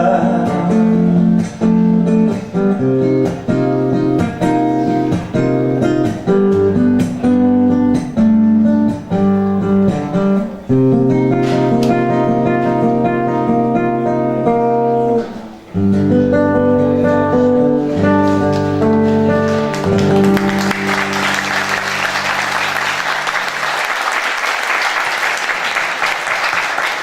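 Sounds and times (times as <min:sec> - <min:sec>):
guitar chords: 0:00.0 - 0:23.9
audience applause: 0:19.5 - 0:27.0.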